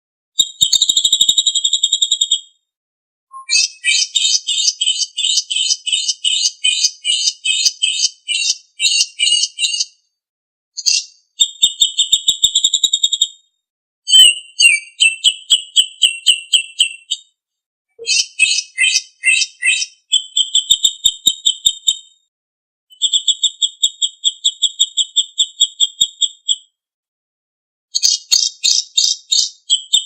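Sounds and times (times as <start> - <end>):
fast bird trill: 3.3 - 10.0, 14.1 - 17.2, 18.0 - 22.0, 28.0 - 30.0
songbird singing: 3.3 - 10.0, 14.1 - 17.2, 18.0 - 22.0.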